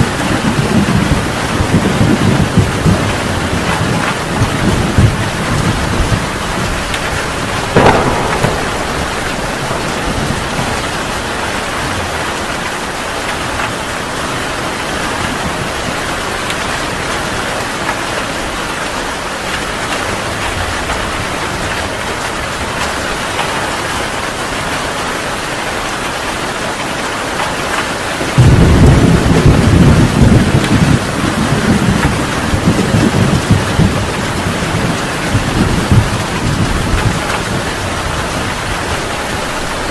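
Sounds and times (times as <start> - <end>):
heavy rain falling: 0.0 - 39.9
low rolling thunder rumble: 0.2 - 14.0, 28.4 - 39.9
sharp thunder crack: 7.4 - 12.3.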